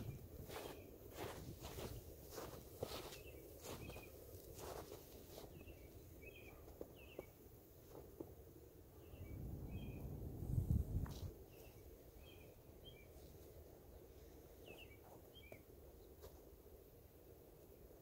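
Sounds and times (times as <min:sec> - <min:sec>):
small birds chirping: 0:00.0 - 0:08.0, 0:08.9 - 0:16.2
low rumble: 0:08.9 - 0:11.5.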